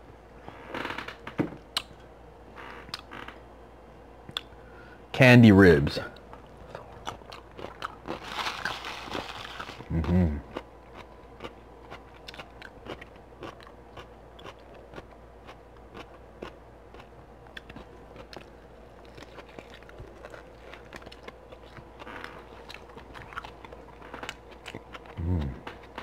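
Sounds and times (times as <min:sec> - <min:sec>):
person chewing wetly: 0:06.2 - 0:26.0.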